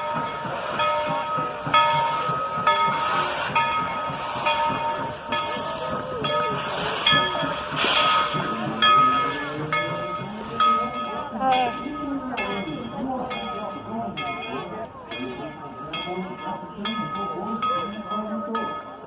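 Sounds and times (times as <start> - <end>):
steam hissing and chuffing: 0.0 - 11.3
locomotive bell ringing: 0.0 - 19.0.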